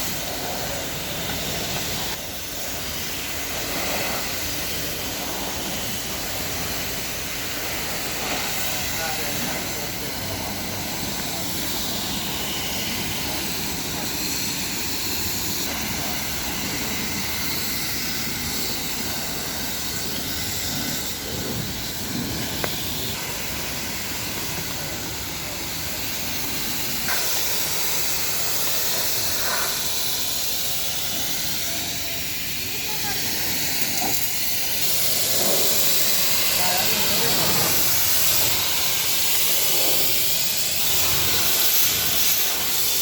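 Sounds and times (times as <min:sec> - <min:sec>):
car wash wand spraying: 0:00.0 - 0:43.0.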